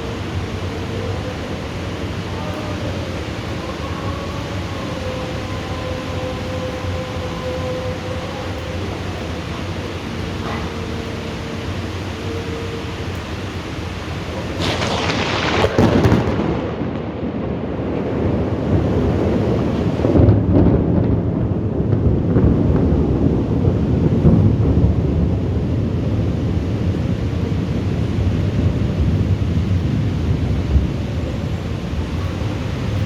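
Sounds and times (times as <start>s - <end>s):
rain hissing: 0.0s - 33.0s
thunder crack and rumble: 14.2s - 33.0s.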